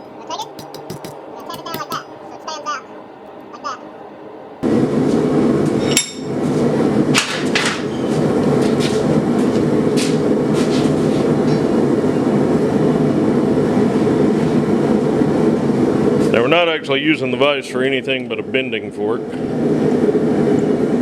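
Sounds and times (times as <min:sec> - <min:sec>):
metal clang: 0:00.0 - 0:02.5.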